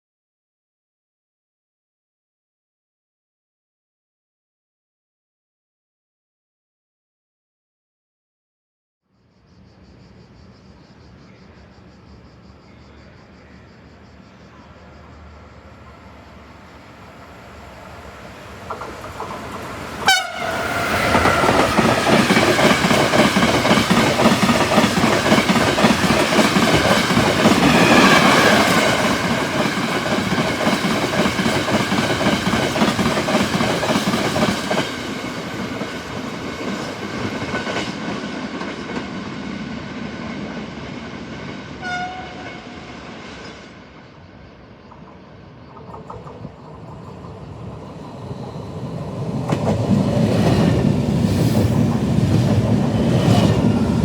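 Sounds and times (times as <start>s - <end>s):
train wheels clattering: 18.5s - 41.7s
train horn blast: 20.0s - 21.8s, 41.8s - 43.0s.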